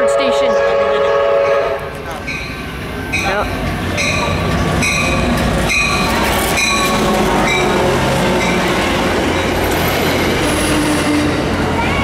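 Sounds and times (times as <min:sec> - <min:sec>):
train rumbling: 0:00.0 - 0:12.0
train bell ringing: 0:01.4 - 0:09.9.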